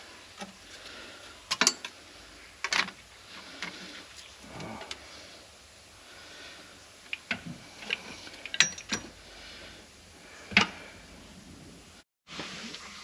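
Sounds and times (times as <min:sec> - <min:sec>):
hand tools clicking on metal: 0:07.1 - 0:09.2.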